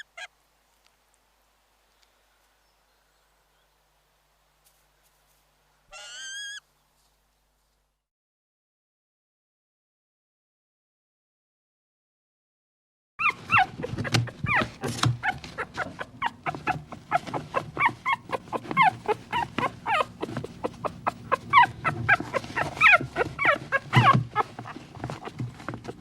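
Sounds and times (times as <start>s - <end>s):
dogs whimpering and yipping: 0.0s - 0.3s, 6.0s - 6.6s, 13.2s - 26.0s.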